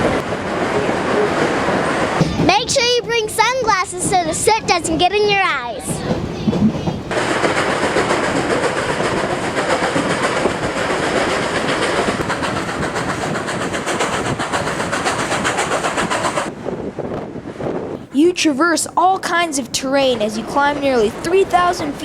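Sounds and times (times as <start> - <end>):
steam train rushing noise: 0.0 - 22.0
train rhythmic clatter: 0.0 - 22.0.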